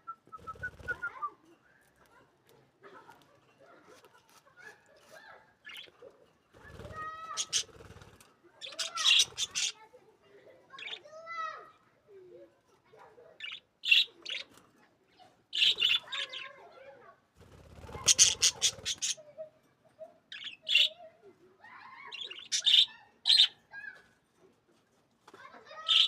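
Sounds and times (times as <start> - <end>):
budgerigars chirping and squawking: 5.6 - 6.1, 6.7 - 8.0, 8.6 - 9.8, 10.7 - 11.0, 13.4 - 14.6, 15.5 - 16.6, 17.8 - 19.2, 20.3 - 21.0, 22.1 - 23.6.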